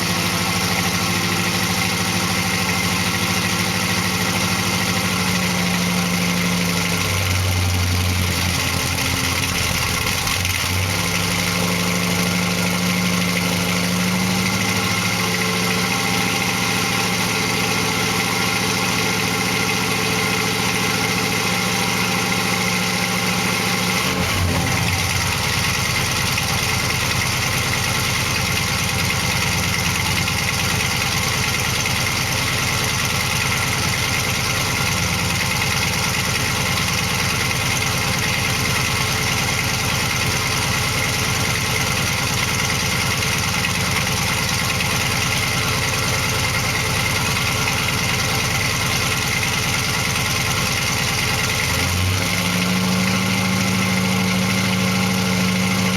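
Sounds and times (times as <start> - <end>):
engine idling: 0.0 - 55.9.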